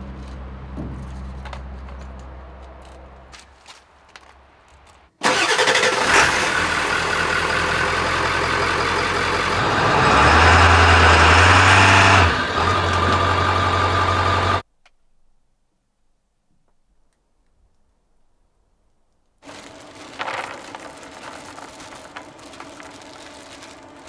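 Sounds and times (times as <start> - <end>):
pickup truck engine running: 5.2 - 14.6.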